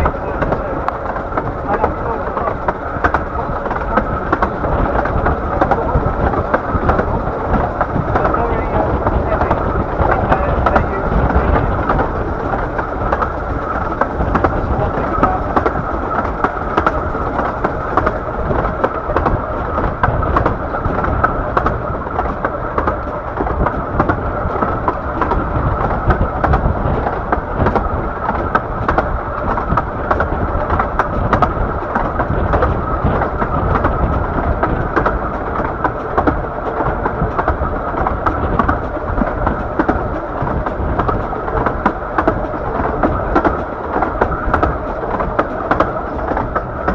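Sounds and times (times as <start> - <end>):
miniature train rumbling on track: 0.0 - 46.9.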